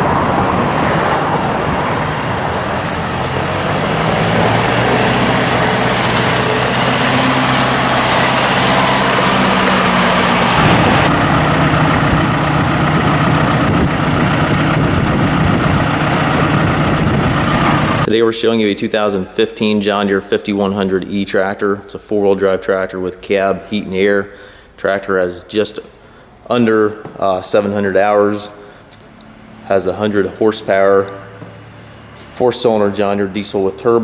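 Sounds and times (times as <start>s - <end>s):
tractor diesel engine running: 0.0s - 18.1s, 27.1s - 34.0s.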